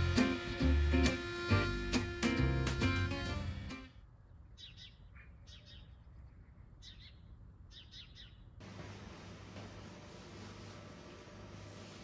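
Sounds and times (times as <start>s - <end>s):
room tone hiss: 8.6s - 12.0s.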